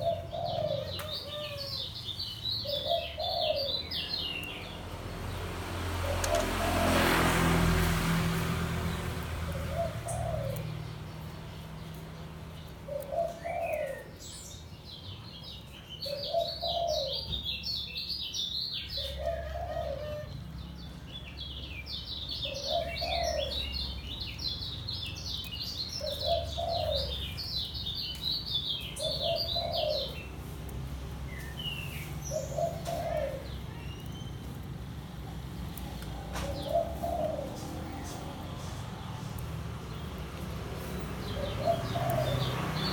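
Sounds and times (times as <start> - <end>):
dove cooing: 0.0 - 2.0, 2.6 - 4.7, 6.0 - 7.1, 9.4 - 11.0, 12.8 - 14.2, 16.0 - 17.4, 19.0 - 20.4, 22.4 - 23.7, 26.0 - 27.4, 29.0 - 30.4, 31.8 - 34.1, 35.8 - 39.0, 40.8 - 42.9
bird twittering song: 0.0 - 7.0, 8.8 - 42.9.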